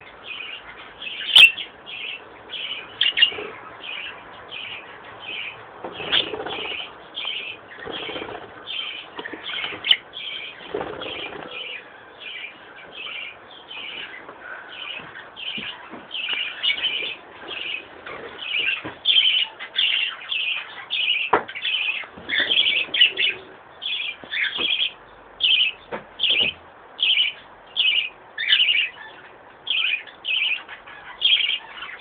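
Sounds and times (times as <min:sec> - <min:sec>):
birds chirping: 0:00.0 - 0:32.0
wings fluttering: 0:05.9 - 0:11.6.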